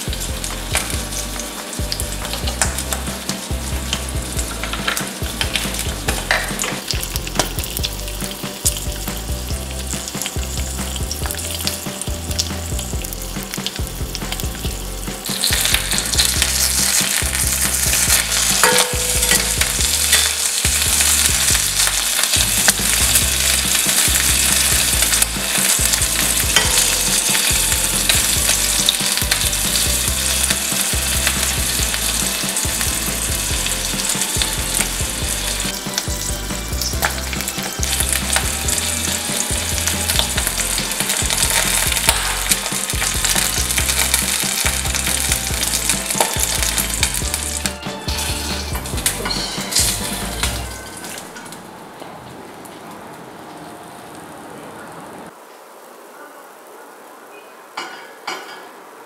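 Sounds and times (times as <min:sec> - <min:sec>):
food sizzling in oil: 0:00.0 - 0:51.6
metal spatula clinking pan: 0:18.5 - 0:20.5, 0:48.7 - 0:51.5.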